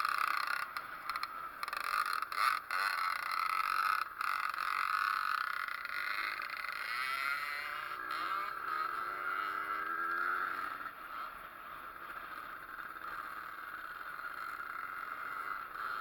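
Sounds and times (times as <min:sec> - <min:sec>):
two-stroke engine running: 0:00.0 - 0:16.0.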